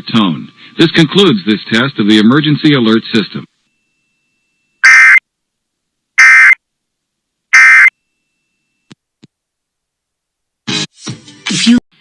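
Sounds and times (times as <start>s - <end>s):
buzzy digital data tone bursts: 6.2s - 6.6s, 7.6s - 7.9s.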